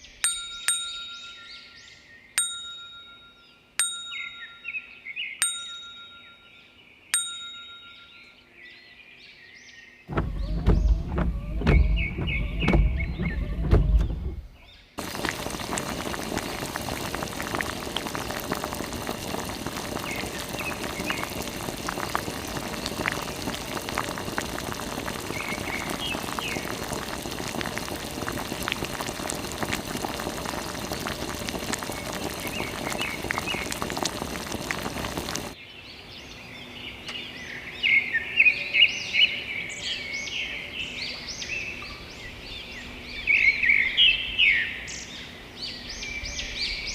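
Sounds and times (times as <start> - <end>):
small birds chirping: 3.4 - 46.9
water spraying hiss: 15.0 - 35.6.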